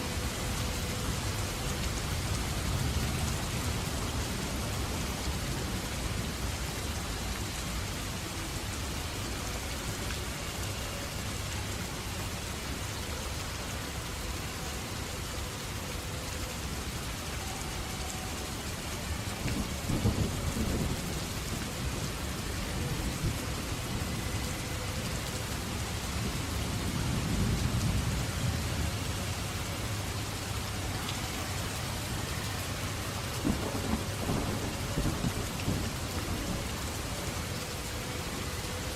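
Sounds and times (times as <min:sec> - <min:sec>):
heavy rain hissing: 0:00.0 - 0:38.9
thunder rumbling: 0:19.1 - 0:30.2, 0:30.8 - 0:37.8.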